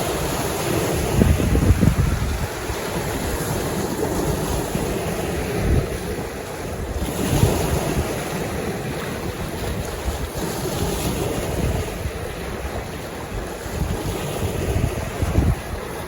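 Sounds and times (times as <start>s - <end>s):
waves washing on shore: 0.0s - 16.0s
wind buffeting microphone: 0.0s - 16.0s.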